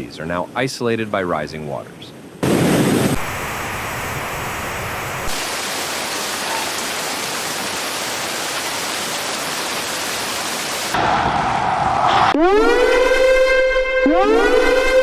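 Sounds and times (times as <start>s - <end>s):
heavy water rushing: 2.4s - 11.9s.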